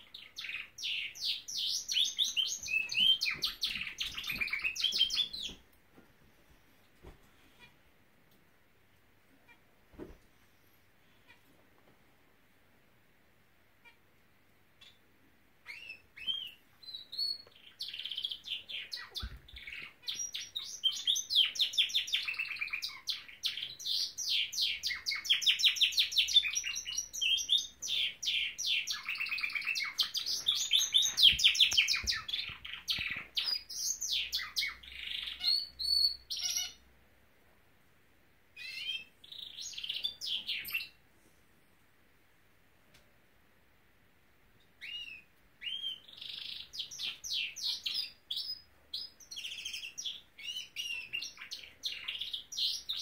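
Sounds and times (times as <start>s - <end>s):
canary singing trills: 0.0s - 5.6s, 14.8s - 36.9s, 38.5s - 41.0s, 44.7s - 53.0s.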